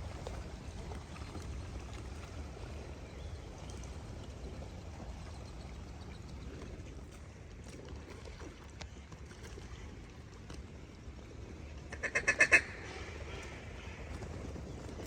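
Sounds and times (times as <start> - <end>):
low background rumble: 10.0 - 15.0
duck quacks: 11.9 - 13.5.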